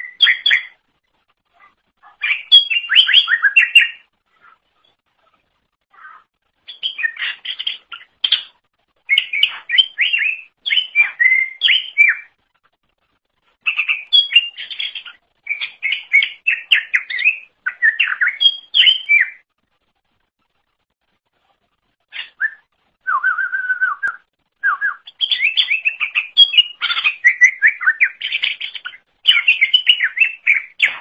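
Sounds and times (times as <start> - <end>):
bird chirps and whistles: 0.0 - 0.8, 2.2 - 4.0, 6.7 - 12.4, 13.6 - 19.4, 22.2 - 31.0.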